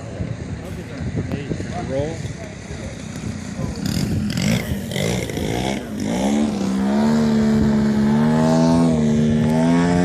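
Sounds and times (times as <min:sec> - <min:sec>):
model airplane motor buzzing: 0:03.2 - 0:10.0.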